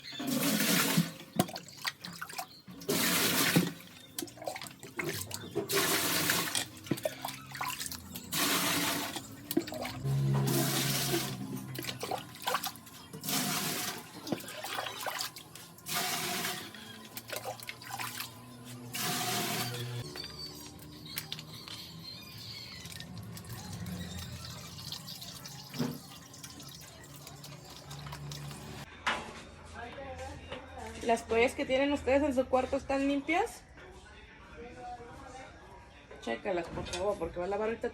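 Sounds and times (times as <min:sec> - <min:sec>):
water gushing and splashing: 0:00.2 - 0:20.0.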